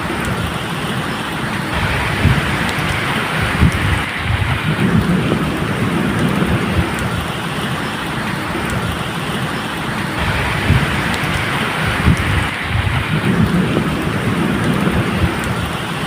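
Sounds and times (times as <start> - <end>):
rain falling: 0.0 - 16.0
low rumble of thunder: 1.7 - 7.4, 10.2 - 15.8.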